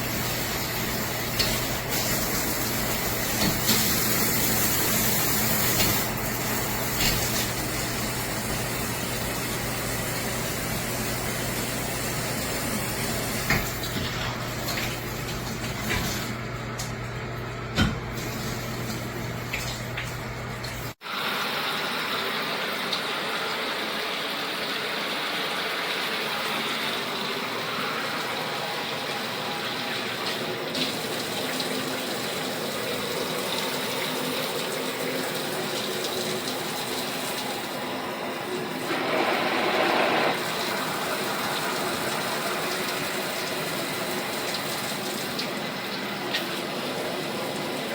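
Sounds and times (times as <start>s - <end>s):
water spraying from showerhead: 0.0s - 16.4s, 18.1s - 21.0s, 38.6s - 47.9s.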